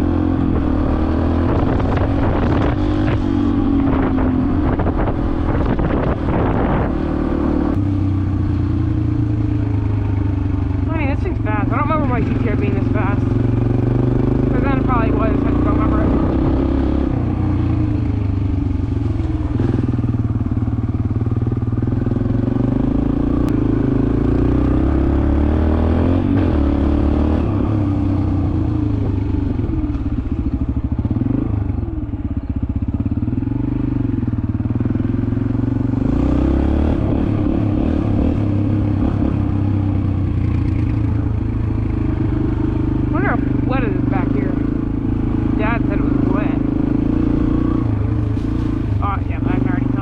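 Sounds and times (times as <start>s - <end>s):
dirt bike engine revving: 9.2s - 31.8s, 32.8s - 50.0s.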